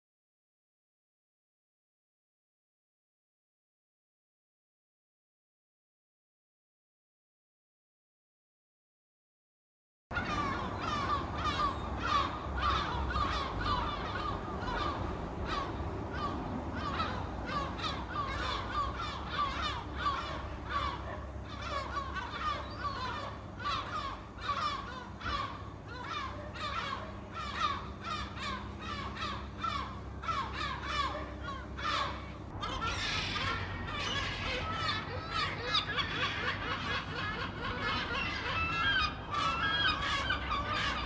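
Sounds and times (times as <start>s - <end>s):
seagulls calling: 10.1s - 41.0s.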